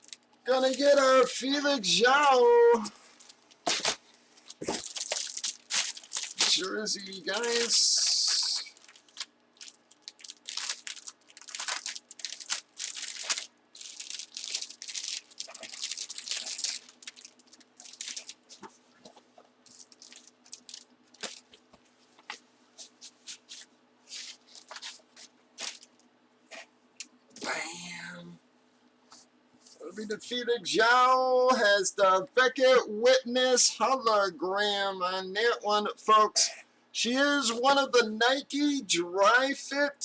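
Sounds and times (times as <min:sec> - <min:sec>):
plastic packaging crinkling: 0:00.0 - 0:01.3, 0:03.0 - 0:21.6, 0:22.2 - 0:26.0.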